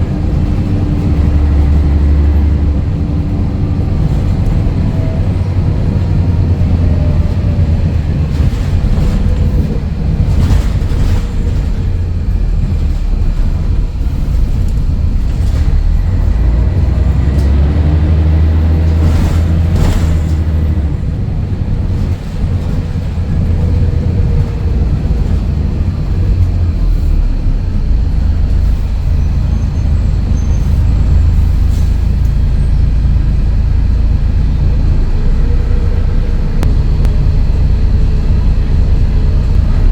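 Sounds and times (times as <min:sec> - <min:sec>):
sharp knocks and rattles: 0:00.0 - 0:21.0
bus diesel engine running: 0:00.0 - 0:39.9.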